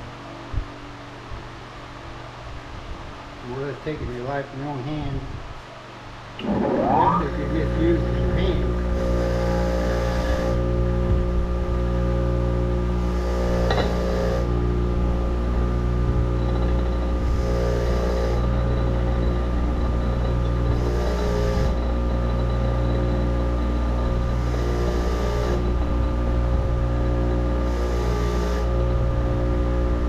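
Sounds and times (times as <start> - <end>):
electric wire wheel humming: 6.2 - 30.0.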